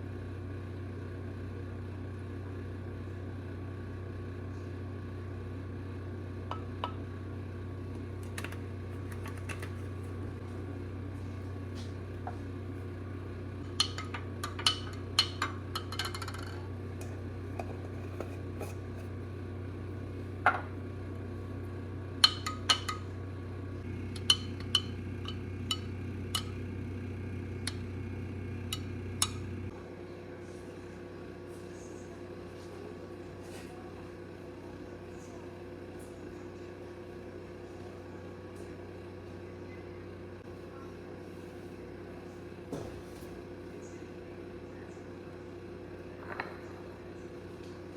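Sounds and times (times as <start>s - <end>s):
low appliance hum: 0.0s - 47.9s.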